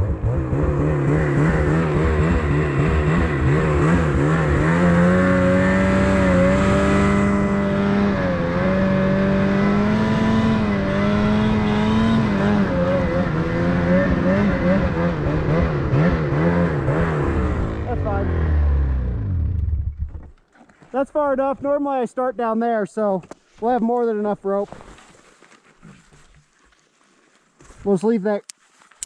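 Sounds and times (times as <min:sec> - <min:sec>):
engine running loud: 0:00.0 - 0:20.0.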